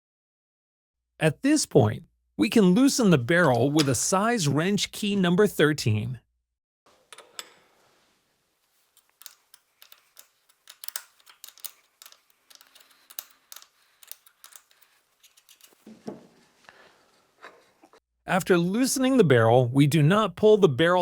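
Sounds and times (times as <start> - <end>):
wrench clicks and taps: 9.0 - 14.9.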